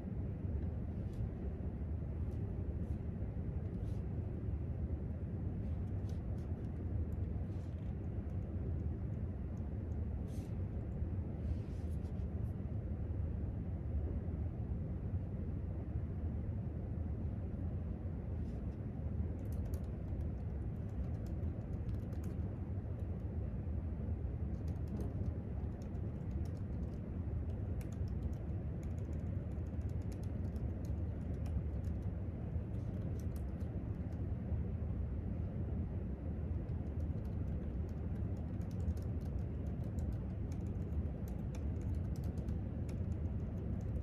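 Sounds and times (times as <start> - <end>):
room ventilation hum: 0.0 - 44.0
laptop keyboard typing: 19.4 - 22.4, 24.5 - 34.2, 36.7 - 44.0.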